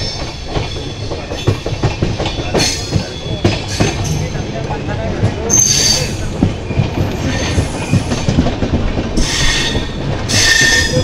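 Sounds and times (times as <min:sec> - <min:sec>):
train rumble: 0:00.0 - 0:11.0
high-pitched wheel squeal: 0:05.5 - 0:06.2, 0:09.2 - 0:11.0.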